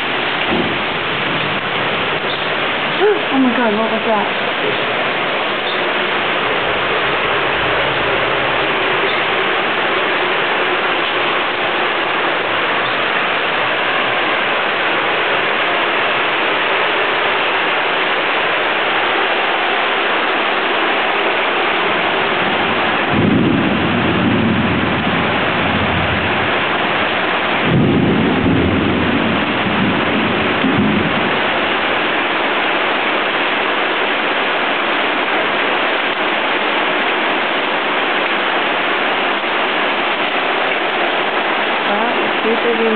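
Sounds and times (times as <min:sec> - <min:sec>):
heavy rain falling: 0:00.0 - 0:42.9
thunder claps: 0:00.2 - 0:04.9, 0:22.4 - 0:31.9.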